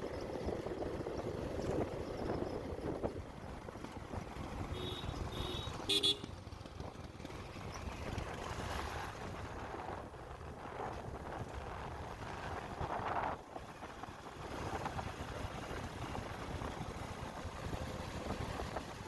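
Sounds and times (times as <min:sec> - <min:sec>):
road and engine rumble: 0:00.0 - 0:19.0
vehicle horn beeping: 0:04.7 - 0:06.4.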